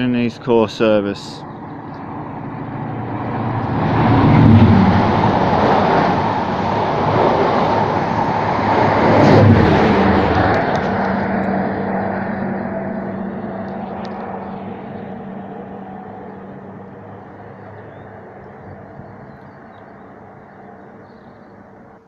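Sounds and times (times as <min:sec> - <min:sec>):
train passing at speed: 0:00.0 - 0:22.0.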